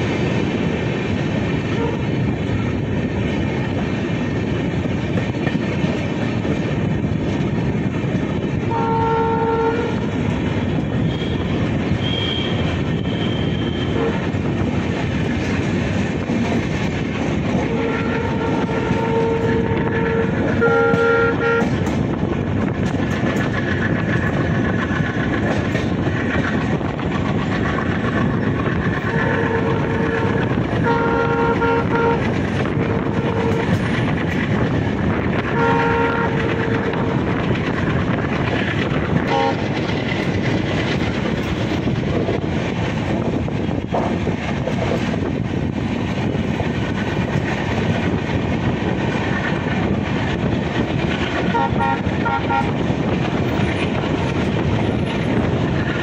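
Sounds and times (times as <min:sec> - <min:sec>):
train wheels rumbling on rails: 0:00.0 - 0:56.0
multi-note train horn: 0:01.7 - 0:02.2, 0:08.7 - 0:10.2, 0:11.1 - 0:14.4, 0:17.5 - 0:21.9, 0:29.0 - 0:34.0, 0:35.4 - 0:37.4, 0:39.2 - 0:39.6, 0:51.4 - 0:52.8.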